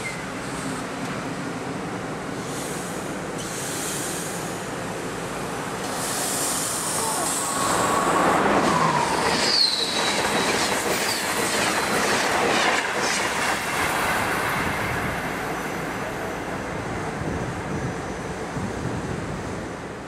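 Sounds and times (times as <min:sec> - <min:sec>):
electric train passing: 0:00.0 - 0:20.0
wheel squeal: 0:08.7 - 0:11.4.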